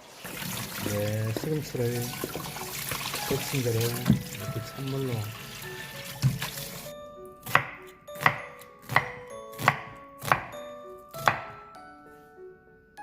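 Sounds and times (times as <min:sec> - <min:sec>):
knife chopping on cutting board: 0:06.2 - 0:06.5, 0:07.4 - 0:11.6.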